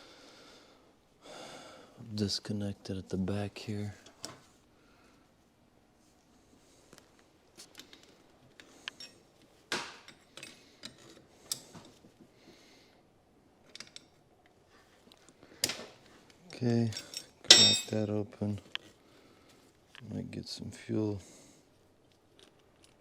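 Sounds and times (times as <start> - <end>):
hand tools clicking and tapping: 7.7 - 12.0.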